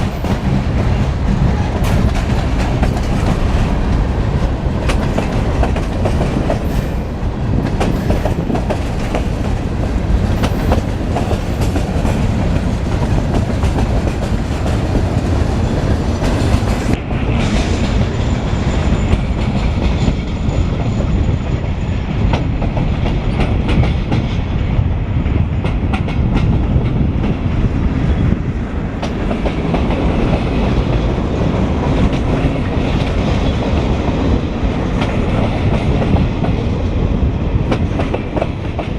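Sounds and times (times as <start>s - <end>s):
train wheels clacking over rail joints: 0.0s - 18.1s, 22.2s - 24.4s, 29.0s - 36.6s, 37.6s - 38.9s
train rumble: 0.0s - 38.9s.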